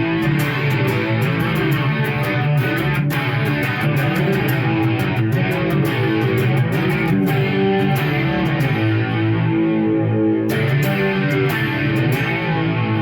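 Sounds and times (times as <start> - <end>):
electric guitar rock riff: 0.0 - 13.0.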